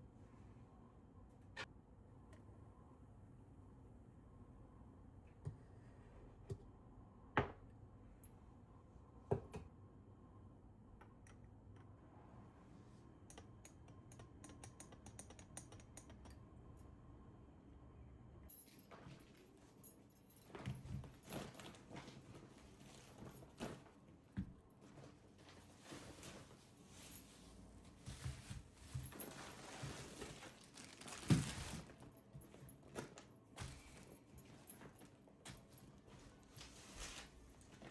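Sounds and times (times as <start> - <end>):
rustling: 24.8 - 32.1.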